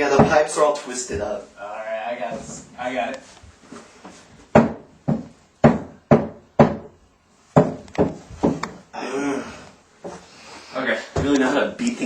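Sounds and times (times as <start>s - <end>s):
hammer banging on pipes: 4.5s - 7.0s.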